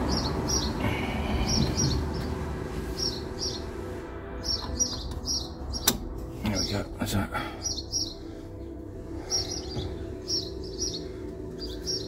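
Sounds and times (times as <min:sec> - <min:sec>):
small bird chirping: 0:03.0 - 0:03.6, 0:04.4 - 0:05.9, 0:07.6 - 0:08.3, 0:09.2 - 0:12.0.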